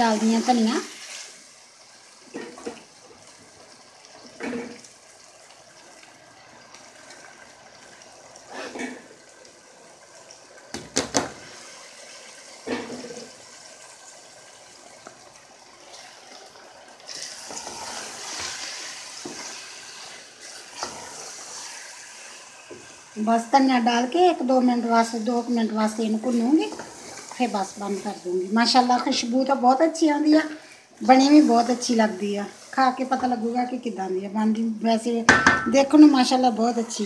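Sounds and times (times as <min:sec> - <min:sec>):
vegetables sizzling in oil: 0:00.0 - 0:37.0
wooden spoon knocking and scraping pot: 0:35.3 - 0:36.0.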